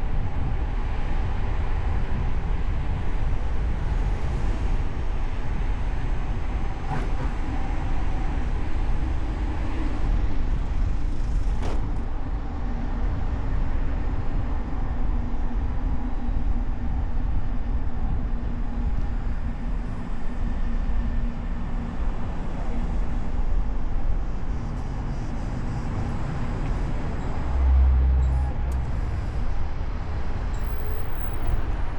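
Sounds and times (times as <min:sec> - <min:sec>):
road and engine rumble: 0:00.0 - 0:31.9
short sharp knocks: 0:11.6 - 0:12.1
low thump: 0:11.6 - 0:12.2.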